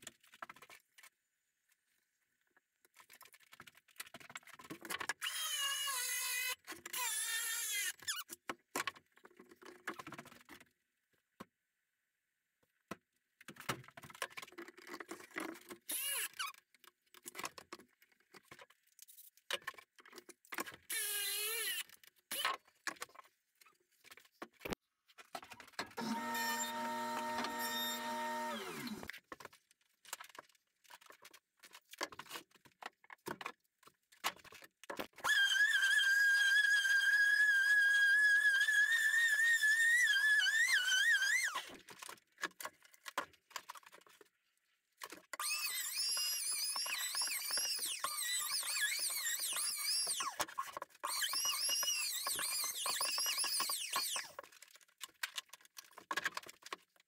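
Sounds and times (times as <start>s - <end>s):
power tool high whine: 26.0s - 29.1s.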